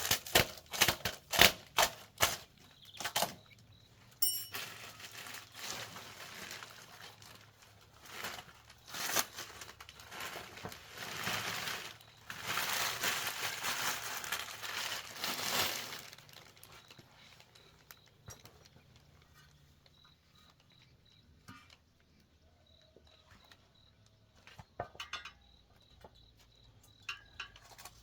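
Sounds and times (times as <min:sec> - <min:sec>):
material crinkling and rustling: 0:00.0 - 0:22.2.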